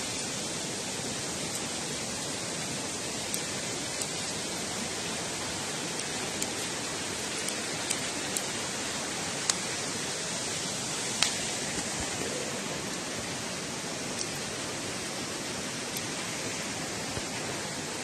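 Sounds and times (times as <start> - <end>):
steady rushing hiss: 0.0 - 18.0
campfire pops and snaps: 3.2 - 5.1, 5.7 - 8.6, 9.4 - 9.7, 11.1 - 12.4, 14.1 - 14.6, 15.8 - 16.4.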